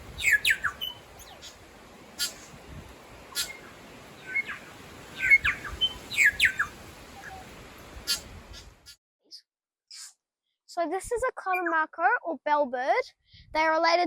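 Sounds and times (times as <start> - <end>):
bird whistling downward notes: 0.2 - 1.4, 3.4 - 7.5
sharp bird chips: 0.2 - 1.6.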